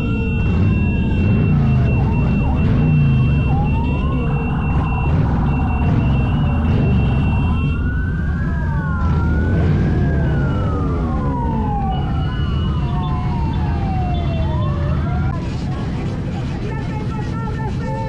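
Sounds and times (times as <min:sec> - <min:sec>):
low engine rumble: 0:00.0 - 0:14.0
emergency sirens wailing: 0:00.0 - 0:18.0.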